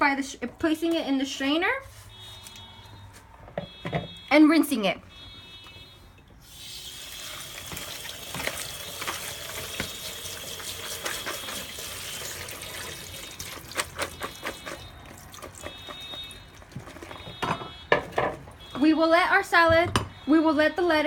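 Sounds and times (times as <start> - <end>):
faucet running water: 6.4 - 17.0.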